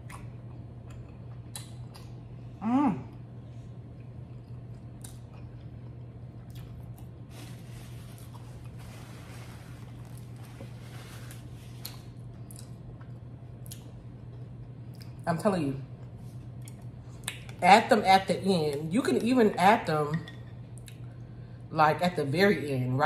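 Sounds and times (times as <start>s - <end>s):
person chewing: 0.0s - 2.4s, 3.1s - 7.3s, 8.0s - 8.8s, 9.8s - 15.2s
steady low hum: 0.0s - 23.0s.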